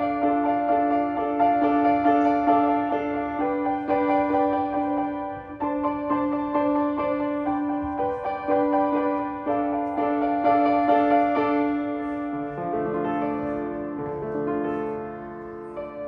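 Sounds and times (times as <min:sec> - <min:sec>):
solo piano playing: 0:00.0 - 0:16.0.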